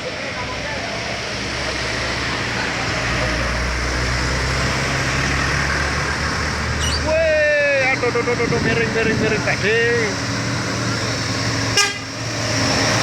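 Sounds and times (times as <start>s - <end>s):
heavy truck engine at low revs: 0.0s - 13.0s
road noise: 0.0s - 13.0s.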